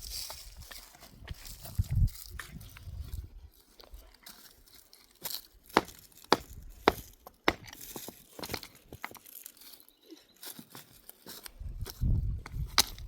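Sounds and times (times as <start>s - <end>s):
material snapping and crinkling: 3.7s - 9.6s, 10.9s - 13.0s.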